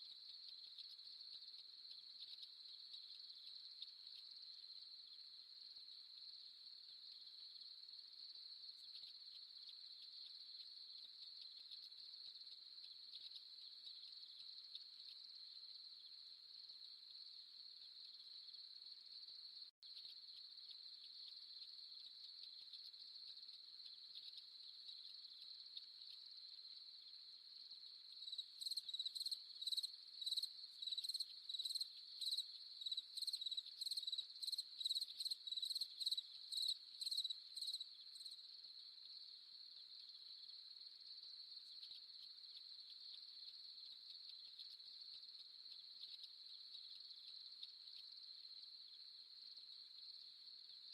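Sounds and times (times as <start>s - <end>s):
cricket chirping in rapid pulses: 0.0s - 50.9s
crickets trilling: 19.9s - 50.9s.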